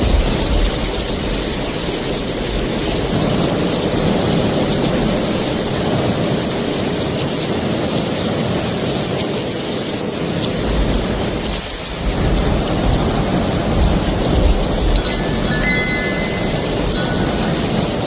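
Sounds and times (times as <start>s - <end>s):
heavy rain: 0.0s - 18.0s
thunder rumbling: 10.7s - 15.6s, 16.2s - 18.0s.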